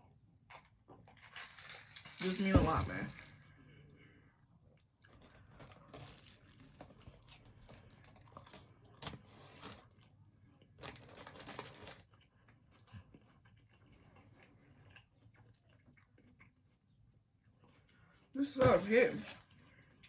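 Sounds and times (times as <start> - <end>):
person chewing food: 4.0 - 18.3.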